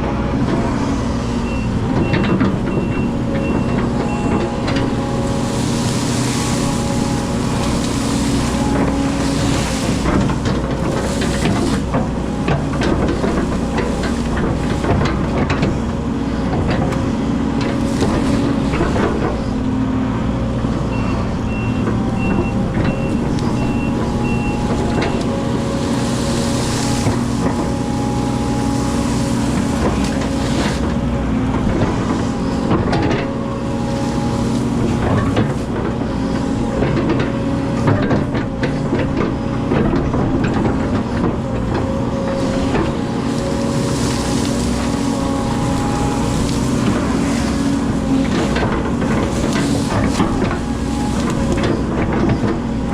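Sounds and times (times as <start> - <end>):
excavator diesel engine: 0.0 - 52.9
warning alarm beeps: 21.0 - 25.2.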